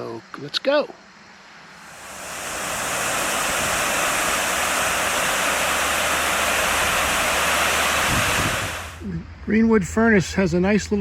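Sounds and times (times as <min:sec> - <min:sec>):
rushing water: 0:01.8 - 0:09.0.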